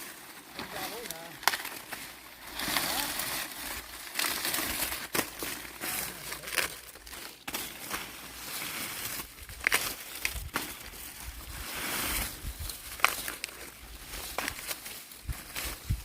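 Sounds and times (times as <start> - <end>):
dry corn leaves rustling: 0.0 - 16.0
stalks snapping: 1.0 - 2.0.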